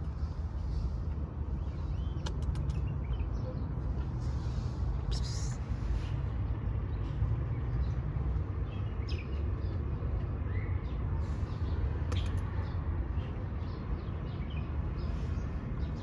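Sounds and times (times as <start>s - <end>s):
small birds chirping: 0.0s - 16.0s
sharp clicks: 2.1s - 3.0s, 12.0s - 12.6s.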